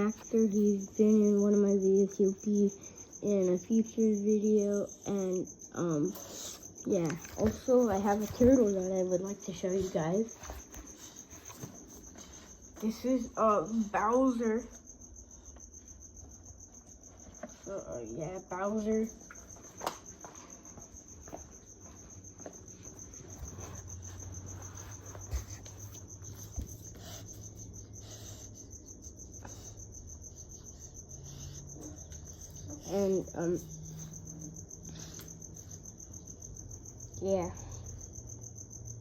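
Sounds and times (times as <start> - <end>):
insect trilling: 21.2 - 39.0.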